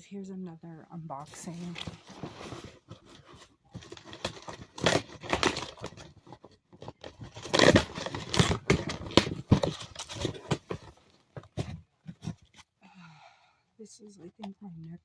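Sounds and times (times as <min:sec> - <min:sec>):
packaging tearing and crinkling: 0:03.8 - 0:10.8.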